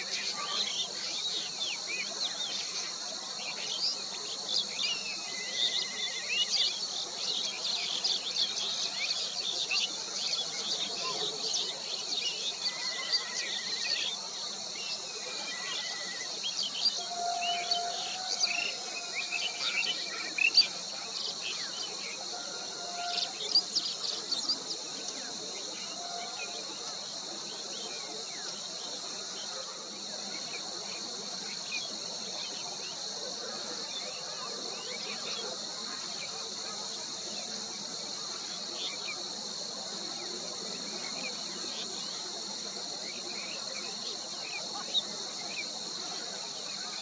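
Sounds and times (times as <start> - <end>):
insects droning: 0.0 - 47.0
bird whistled notes: 16.9 - 19.9.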